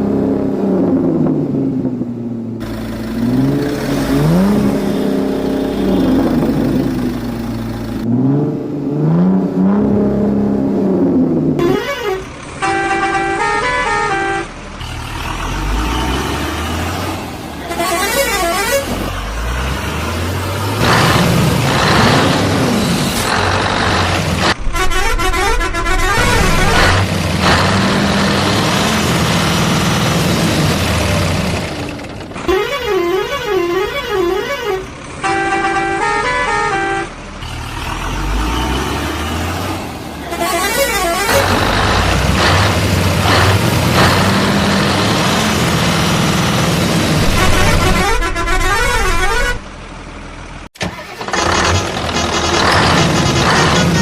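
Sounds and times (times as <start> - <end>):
heavy truck engine rumble: 0.0 - 54.0
multi-note vehicle horn: 11.6 - 14.5, 17.6 - 19.0, 24.6 - 27.0, 32.5 - 37.1, 40.2 - 41.4, 47.2 - 49.7.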